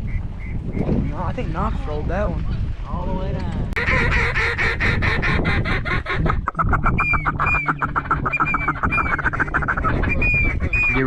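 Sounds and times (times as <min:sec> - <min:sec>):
low wind rumble: 0:00.0 - 0:11.0
duck call whistled notes: 0:05.5 - 0:11.0
duck call clicking chatter: 0:06.1 - 0:10.9.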